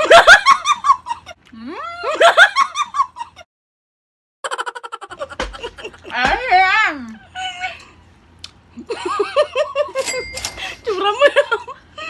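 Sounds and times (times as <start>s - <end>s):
high-pitched giggling laugh: 4.4s - 6.1s.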